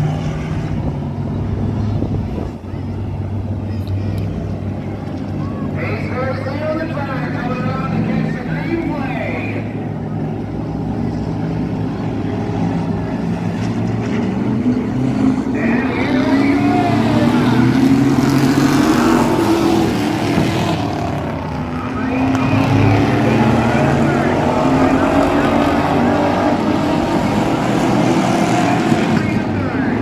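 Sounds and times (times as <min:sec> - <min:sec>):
race engine revving: 0:10.3 - 0:30.0.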